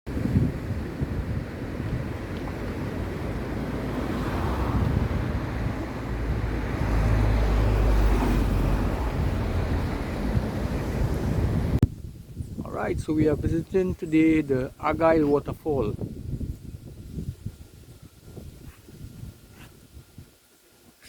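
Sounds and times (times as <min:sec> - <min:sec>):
wind buffeting microphone: 0:00.1 - 0:20.5.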